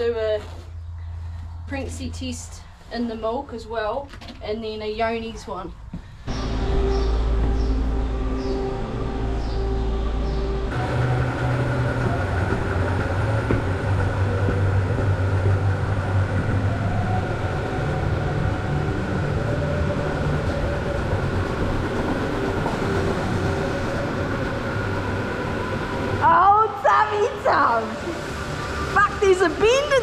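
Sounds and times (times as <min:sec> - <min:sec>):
milking machinery humming: 0:06.4 - 0:26.4.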